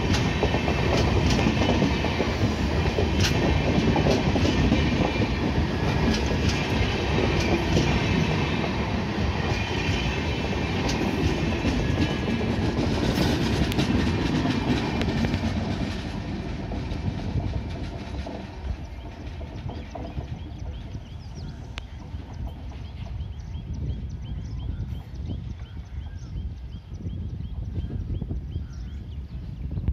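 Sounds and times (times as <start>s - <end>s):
wheels clicking over rail joints: 0.0s - 23.8s
train coaches rolling past: 0.0s - 25.5s.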